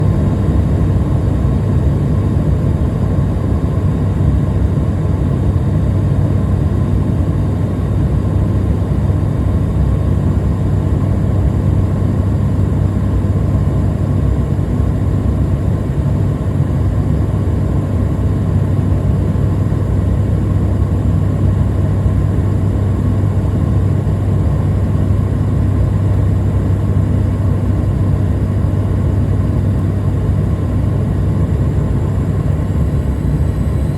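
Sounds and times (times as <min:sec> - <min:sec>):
airliner cabin drone: 0:00.0 - 0:33.9
faint high whine: 0:29.8 - 0:33.9.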